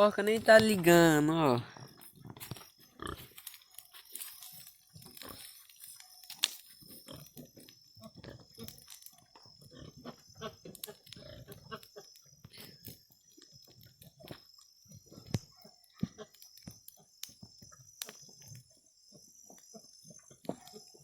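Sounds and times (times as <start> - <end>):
sharp crackling clicks: 3.3 - 7.7.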